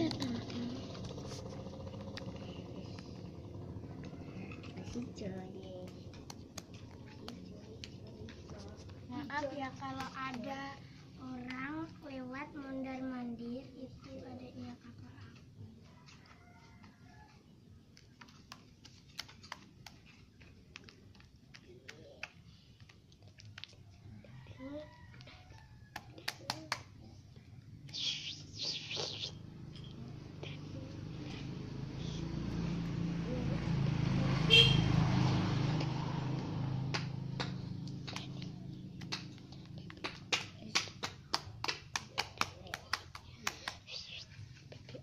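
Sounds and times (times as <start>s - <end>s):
low vehicle hum: 0.0s - 16.0s, 26.8s - 42.7s.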